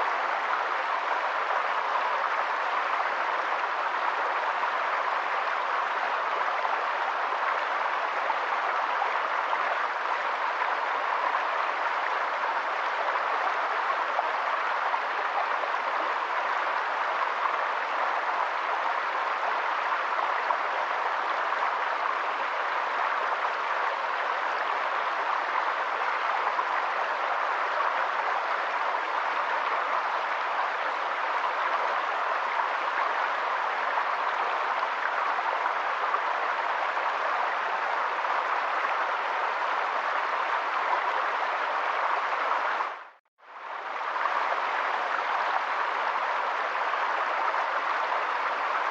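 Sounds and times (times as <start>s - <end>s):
running water rushing: 0.0s - 48.9s.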